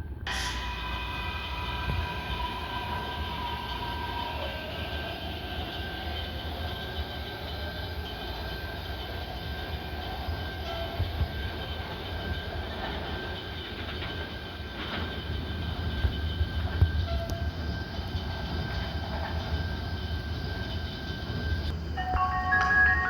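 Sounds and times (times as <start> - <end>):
train rumbling: 0.0 - 23.0
faint high whine: 14.9 - 23.0.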